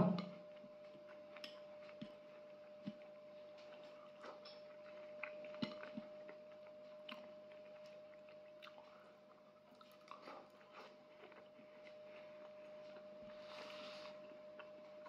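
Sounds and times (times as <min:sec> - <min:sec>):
faint steady hum: 0:00.0 - 0:15.0
person chewing food: 0:00.3 - 0:15.0.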